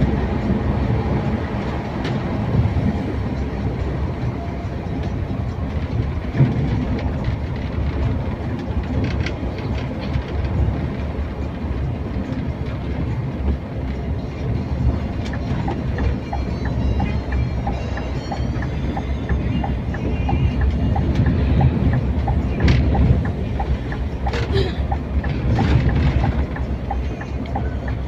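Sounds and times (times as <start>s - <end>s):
bus driving rumble: 0.0s - 28.0s
rattles and clicks: 5.0s - 14.1s, 15.1s - 28.0s.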